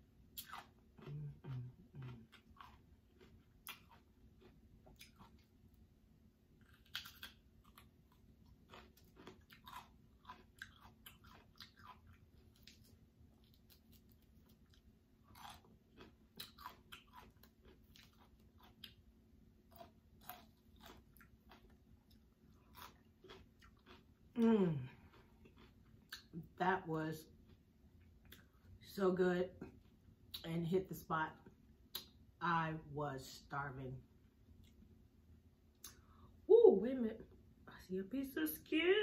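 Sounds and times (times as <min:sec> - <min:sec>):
faint chewing with mouth clicks: 0:00.2 - 0:05.9, 0:06.5 - 0:26.6, 0:27.2 - 0:28.8, 0:29.6 - 0:30.5, 0:31.4 - 0:32.2, 0:34.5 - 0:35.0, 0:35.7 - 0:36.3.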